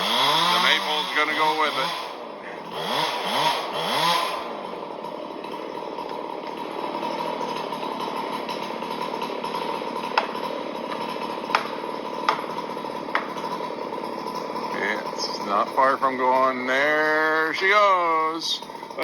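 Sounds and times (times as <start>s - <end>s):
chainsaw cutting wood: 0.0s - 19.0s
sharp wood snaps: 10.0s - 13.5s.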